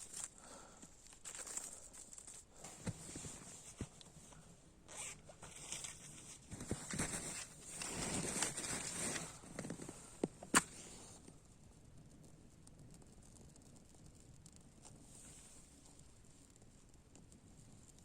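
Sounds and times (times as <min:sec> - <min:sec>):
footsteps crunching in snow: 0:01.1 - 0:04.0, 0:05.0 - 0:10.9.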